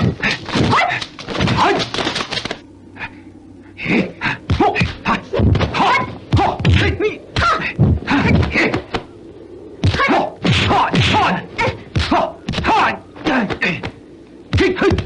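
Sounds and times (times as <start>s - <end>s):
punch and kick whacks: 9.8s - 12.7s.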